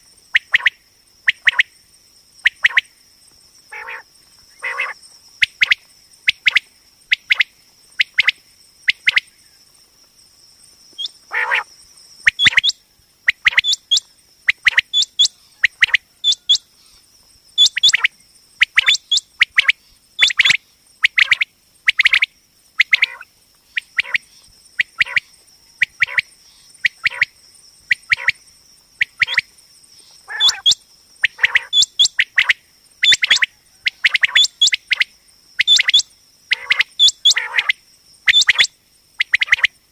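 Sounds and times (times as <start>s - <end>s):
quail calling: 3.7s - 4.0s, 4.6s - 5.0s, 11.0s - 11.7s, 12.3s - 16.6s, 22.8s - 23.2s, 24.8s - 25.2s, 30.2s - 34.8s, 35.6s - 37.7s.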